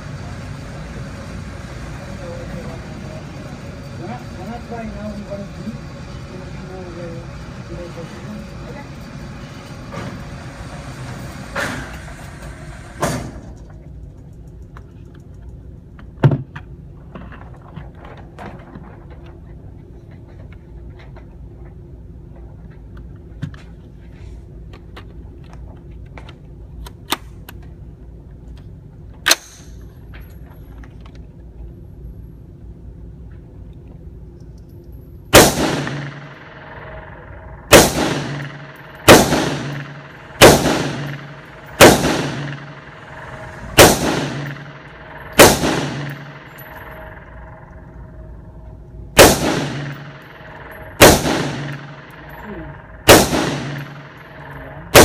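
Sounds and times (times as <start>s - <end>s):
gunshots with ringing echo: 35.3s - 55.0s.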